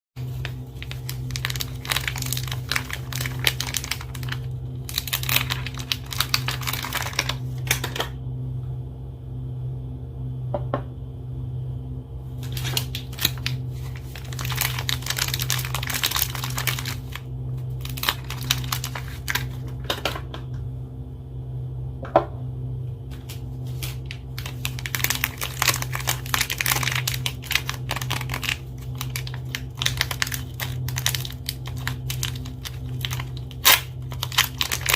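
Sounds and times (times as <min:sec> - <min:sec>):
wrappers crinkling and tearing: 0:00.2 - 0:08.0, 0:12.4 - 0:19.7, 0:23.7 - 0:34.9
steady low hum: 0:00.2 - 0:34.9.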